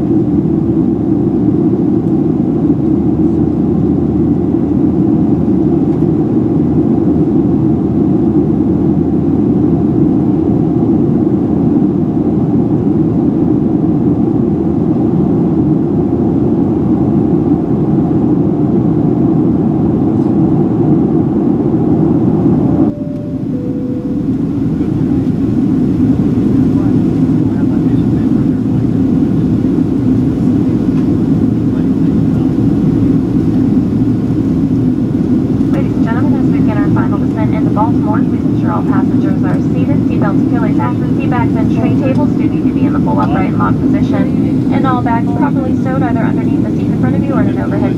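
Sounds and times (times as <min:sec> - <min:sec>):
airplane cabin noise: 0:00.0 - 0:47.9
two-note cabin chime: 0:22.8 - 0:25.6.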